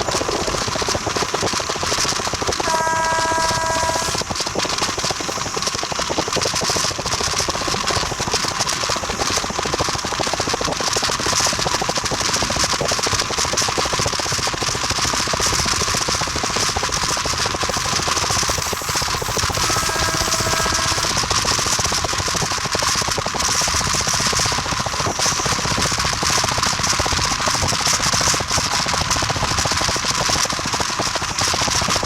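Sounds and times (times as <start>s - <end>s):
train rattling on rails: 0.0s - 32.0s
train warning signal: 2.6s - 4.3s, 18.0s - 21.4s.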